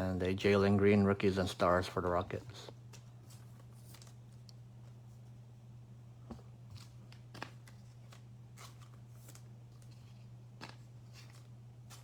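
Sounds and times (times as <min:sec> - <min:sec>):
low electrical hum: 0:00.0 - 0:12.0
cards clicking and rustling: 0:02.9 - 0:05.0, 0:06.7 - 0:12.0.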